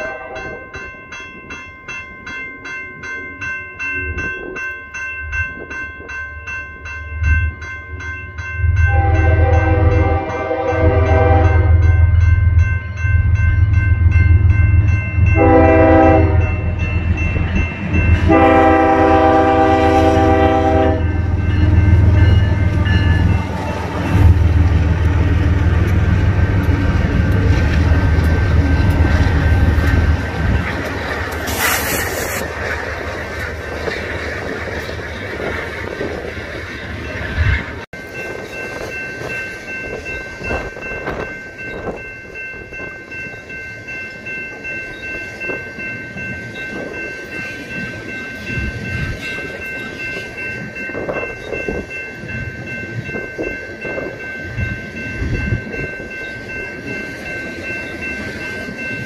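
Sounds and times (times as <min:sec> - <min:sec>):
train air horn blasts: 0:00.0 - 0:00.6, 0:08.9 - 0:11.9, 0:15.4 - 0:16.8, 0:18.2 - 0:23.1, 0:31.5 - 0:32.4
diesel locomotive engine rumble: 0:08.5 - 0:42.9.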